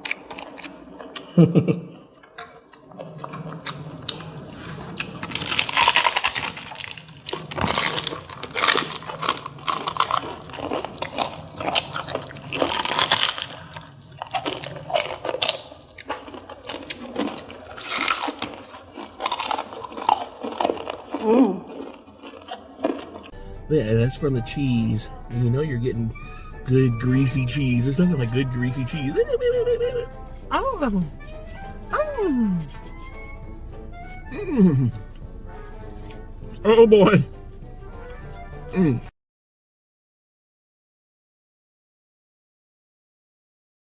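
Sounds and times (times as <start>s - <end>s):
crunching and chewing food: 0.0s - 23.4s, 32.6s - 38.8s.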